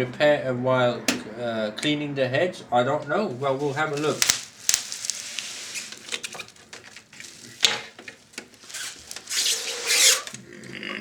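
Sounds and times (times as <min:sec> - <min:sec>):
rubbing scraping noise: 0:03.3 - 0:08.0, 0:08.6 - 0:10.4.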